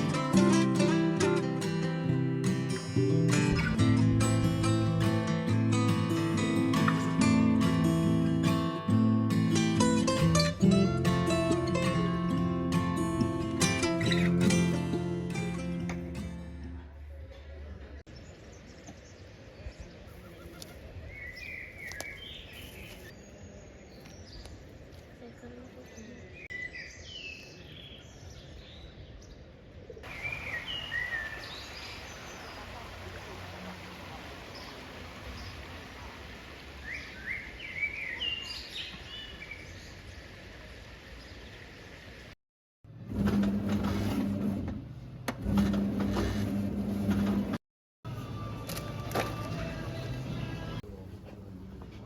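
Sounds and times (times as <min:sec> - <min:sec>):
faint outdoor hiss: 0:18.1 - 0:42.4
bird calls: 0:19.8 - 0:23.2, 0:30.0 - 0:40.2.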